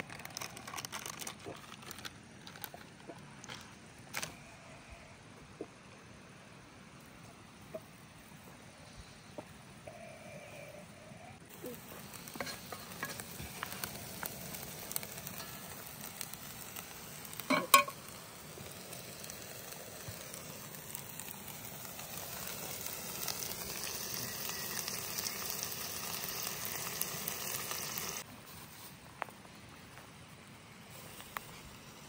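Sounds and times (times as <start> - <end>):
food sizzling in a pan: 11.4 - 28.9.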